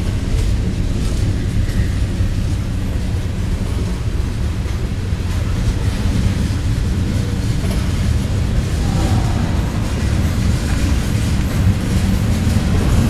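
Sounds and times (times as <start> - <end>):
steel wheels rumbling on track: 0.0 - 13.0.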